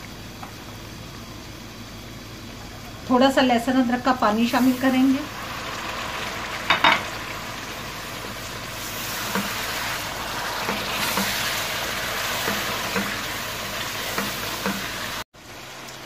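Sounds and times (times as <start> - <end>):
meat sizzling and bubbling in a pot: 0.0 - 16.0.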